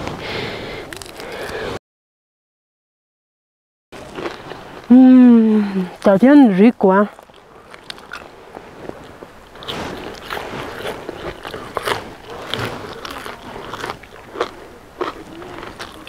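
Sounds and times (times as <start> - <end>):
person chewing crunchy food: 0.9 - 1.6, 4.0 - 5.0, 7.1 - 16.0.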